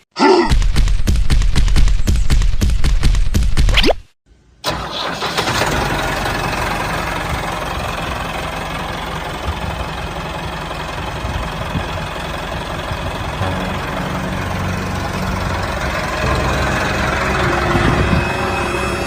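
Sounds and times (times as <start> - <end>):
small engine running: 4.7 - 19.0.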